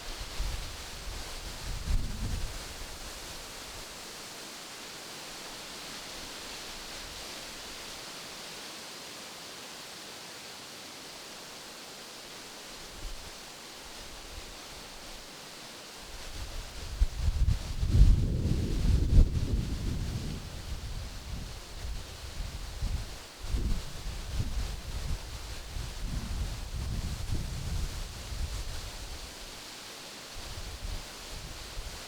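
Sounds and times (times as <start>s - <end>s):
wind rustling leaves: 0.0s - 32.0s
wind buffeting microphone: 16.3s - 29.4s.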